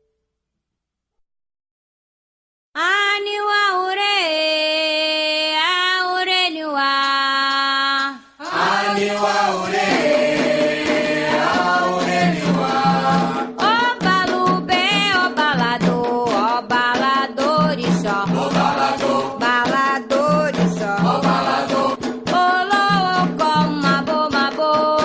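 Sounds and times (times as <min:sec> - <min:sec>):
person singing unaccompanied: 0:02.8 - 0:25.0
voices singing together: 0:07.1 - 0:25.0
drums and percussion: 0:08.0 - 0:25.0.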